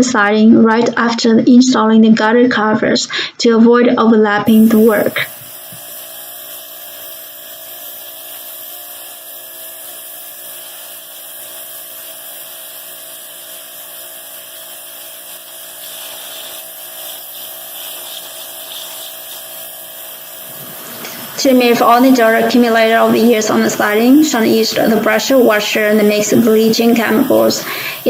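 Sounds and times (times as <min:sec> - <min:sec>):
patchy hiss: 0:04.5 - 0:05.8, 0:15.7 - 0:19.5, 0:20.2 - 0:28.0
pressure washer whine: 0:04.5 - 0:28.0.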